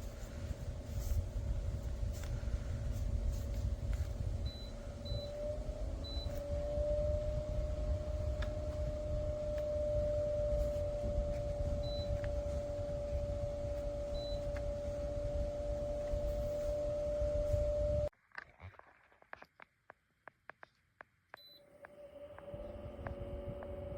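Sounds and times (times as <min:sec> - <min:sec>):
air cooler fan motor humming: 0:00.0 - 0:18.1.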